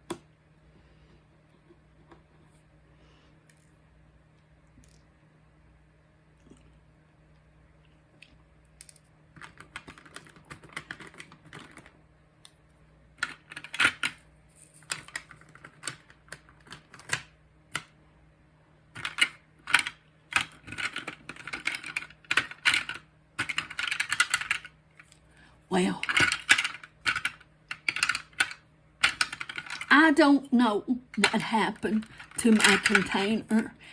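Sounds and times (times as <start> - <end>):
plastic pieces clicking and rattling: 8.8 - 12.0, 13.2 - 17.9, 19.0 - 24.8, 26.0 - 29.9, 32.0 - 33.4.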